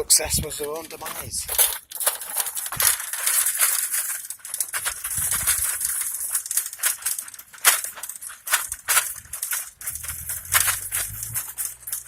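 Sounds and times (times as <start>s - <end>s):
footsteps crunching on gravel: 8.7s - 11.7s.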